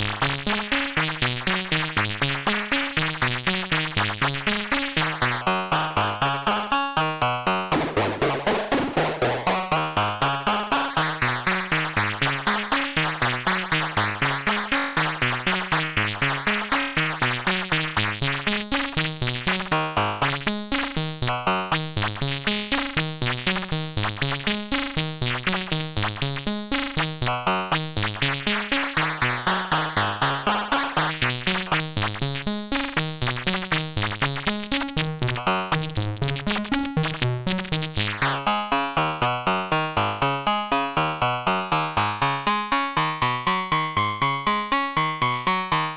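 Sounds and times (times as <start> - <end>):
analog synthesizer pattern: 7.5 - 18.5, 25.2 - 38.5
synthesizer downward sweep: 7.6 - 10.0.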